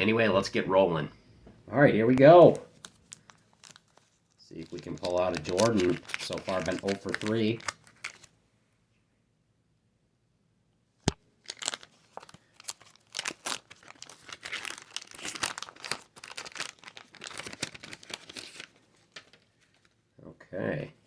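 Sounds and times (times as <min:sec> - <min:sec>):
wax paper wrapper tearing: 0:02.6 - 0:08.3, 0:11.1 - 0:20.0.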